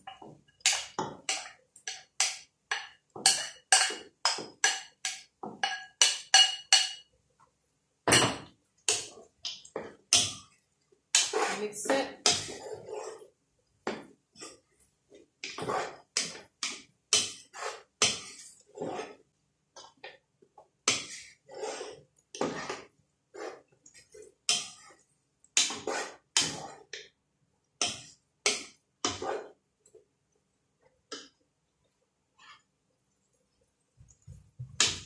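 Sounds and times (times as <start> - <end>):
spatula scraping frying pan: 0.1 - 7.0, 8.9 - 14.8, 15.4 - 19.3, 20.8 - 27.0, 27.8 - 29.6.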